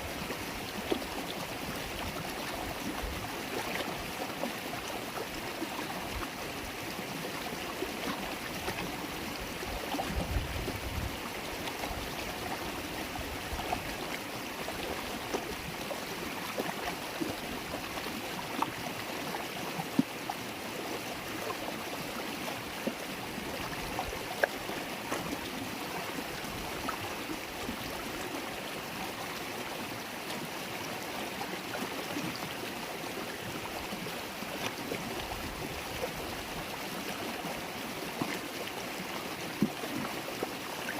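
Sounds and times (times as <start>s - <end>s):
river water babbling: 0.0s - 40.9s
water splashes and plips: 21.4s - 28.4s, 38.1s - 40.9s.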